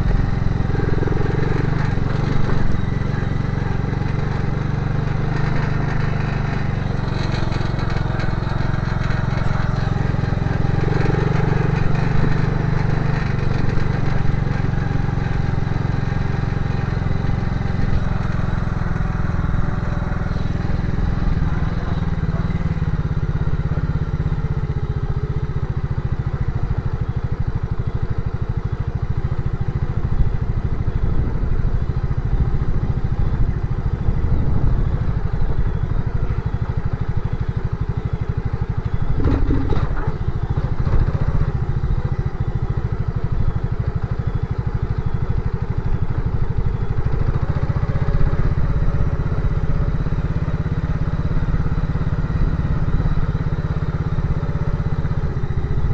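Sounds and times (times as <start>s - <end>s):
motorcycle engine running: 0.0s - 55.9s
knocks and rattles: 3.8s - 16.2s, 39.2s - 41.4s.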